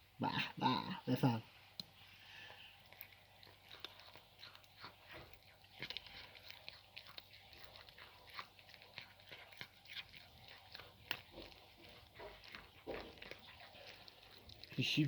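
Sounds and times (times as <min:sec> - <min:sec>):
cat chewing: 0:01.5 - 0:15.0
bone crunching and clicking: 0:02.8 - 0:15.0.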